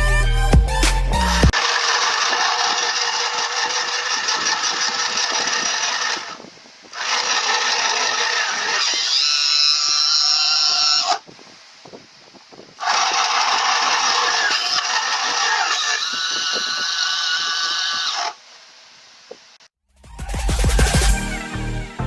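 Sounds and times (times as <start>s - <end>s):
sewing machine whirring: 1.5s - 9.2s, 12.8s - 16.1s.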